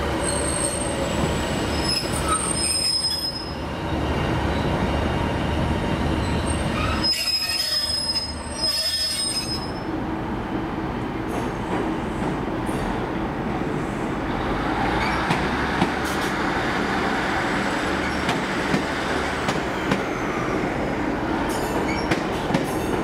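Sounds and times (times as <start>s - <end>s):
high-pitched wheel squeal: 1.7s - 3.6s, 6.3s - 9.8s
train rumble: 3.7s - 23.0s.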